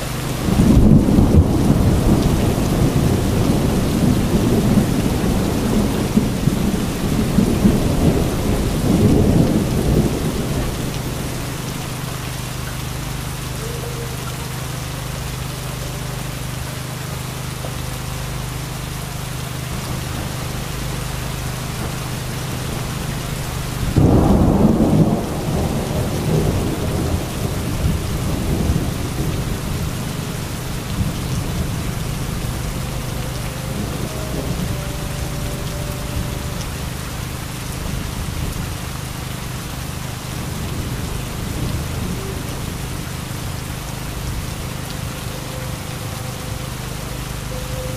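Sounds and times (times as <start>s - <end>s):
thunder rumbling: 0.0s - 15.3s, 19.5s - 39.3s, 40.0s - 47.9s
heavy rain pouring: 0.0s - 47.9s.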